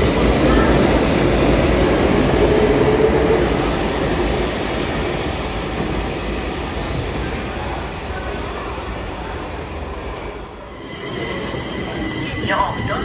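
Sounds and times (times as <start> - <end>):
metro train rumble and rail noise: 0.0 - 13.0.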